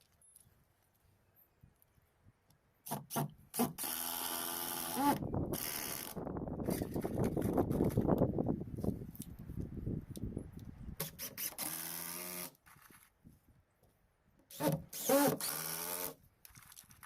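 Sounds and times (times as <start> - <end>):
power drill driving screws: 2.9 - 7.0, 11.0 - 12.6, 14.5 - 16.2.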